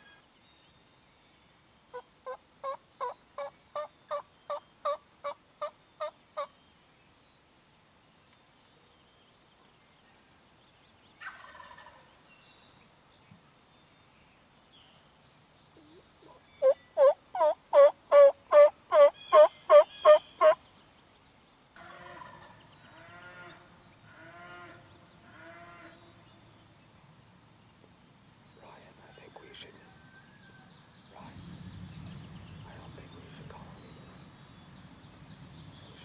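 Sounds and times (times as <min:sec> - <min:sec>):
wild turkeys calling: 0:01.9 - 0:06.5, 0:11.2 - 0:12.1, 0:15.8 - 0:20.6, 0:21.8 - 0:26.0.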